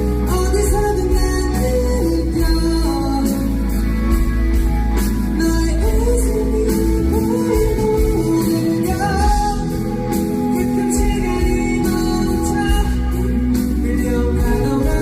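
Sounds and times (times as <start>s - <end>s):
man singing a ballad: 0.0s - 3.9s, 5.2s - 15.0s
live band playing: 0.0s - 15.0s.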